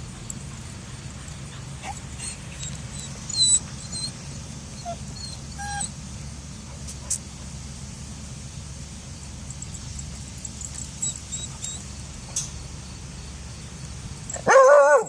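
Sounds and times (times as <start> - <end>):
steady low hum: 0.0 - 15.0
small dog whimpering: 1.8 - 5.9, 11.0 - 11.8.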